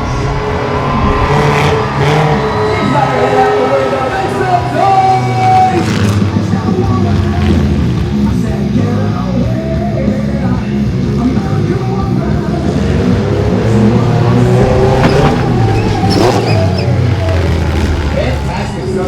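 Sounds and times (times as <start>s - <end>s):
loud rock music: 0.0s - 19.0s
toy truck engine revving: 13.7s - 19.0s.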